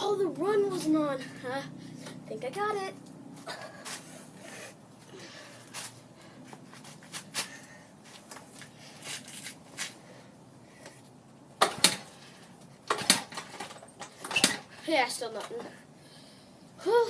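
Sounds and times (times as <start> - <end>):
dirt bike kickstart clicks: 12.9 - 14.6.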